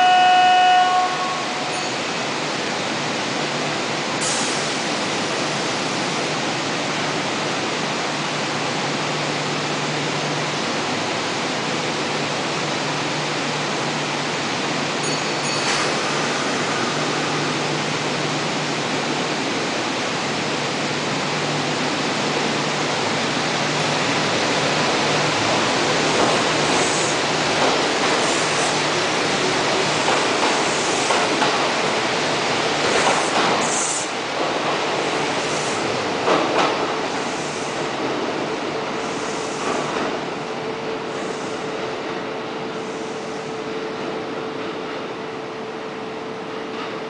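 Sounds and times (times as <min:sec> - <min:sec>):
train rolling: 0:00.0 - 0:47.0.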